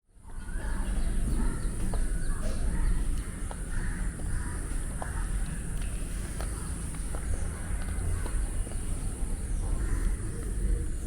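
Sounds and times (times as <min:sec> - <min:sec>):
crows cawing: 0:01.4 - 0:05.7, 0:09.6 - 0:10.8.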